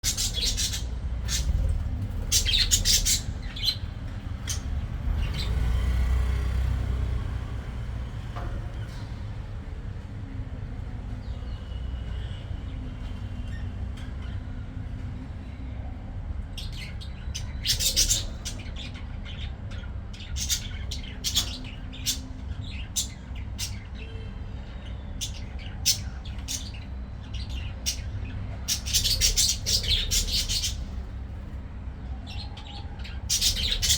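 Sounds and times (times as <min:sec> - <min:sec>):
budgerigars chirping and squawking: 0:00.0 - 0:05.9, 0:16.6 - 0:33.9.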